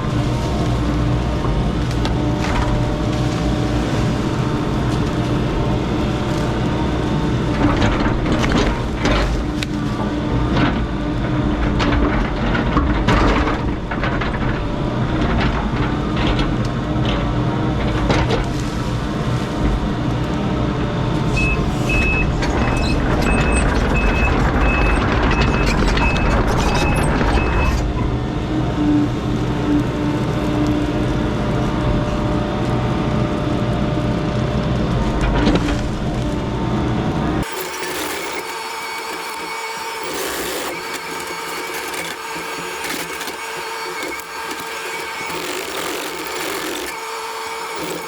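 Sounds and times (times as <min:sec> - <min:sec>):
heavy equipment engine running: 0:00.0 - 0:48.0
backup alarm beeping: 0:21.3 - 0:27.8.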